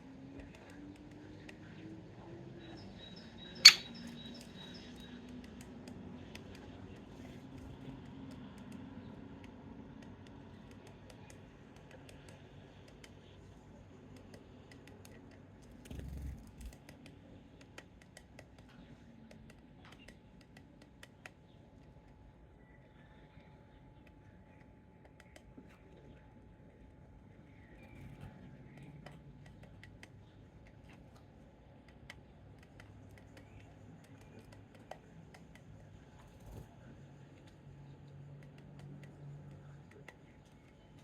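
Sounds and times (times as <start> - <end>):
sharp metallic click: 3.6 - 4.0.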